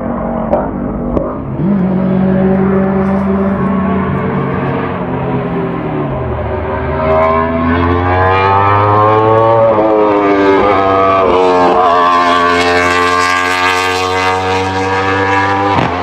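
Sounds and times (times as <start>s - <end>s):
engine accelerating hard: 0.0s - 16.0s.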